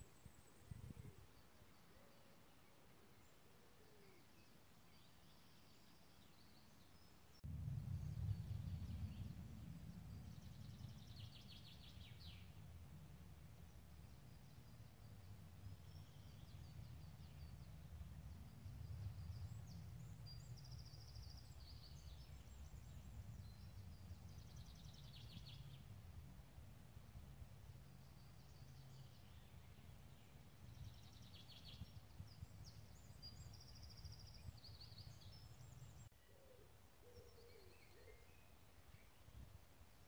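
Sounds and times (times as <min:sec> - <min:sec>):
low uneven rumble: 0:07.5 - 0:20.7
songbirds singing: 0:13.6 - 0:26.0, 0:27.9 - 0:39.4.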